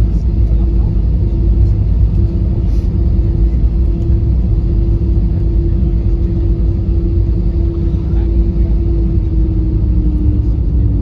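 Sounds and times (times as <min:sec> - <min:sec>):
aircraft cabin rumble and hum: 0:00.0 - 0:11.0.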